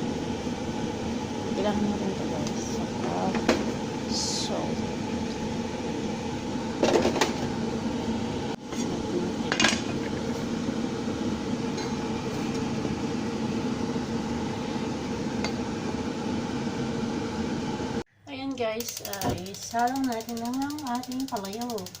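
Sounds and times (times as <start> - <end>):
steady mechanical hum: 0.0 - 22.0
kitchenware clinking: 9.5 - 10.3.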